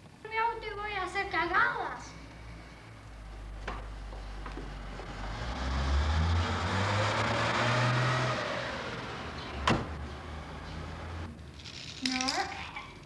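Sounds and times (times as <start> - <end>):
car engine running: 3.2 - 11.4.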